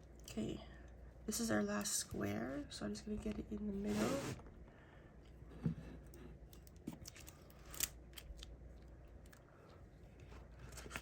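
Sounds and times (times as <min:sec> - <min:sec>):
soft rustling of canvas: 0:03.2 - 0:04.6.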